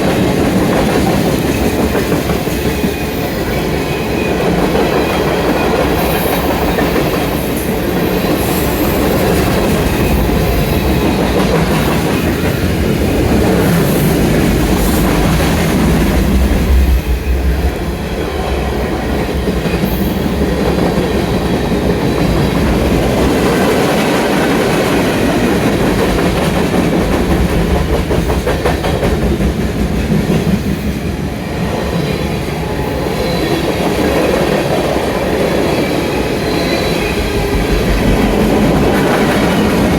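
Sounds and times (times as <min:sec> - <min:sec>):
train wheels clicking over rail joints: 0:00.0 - 0:30.8.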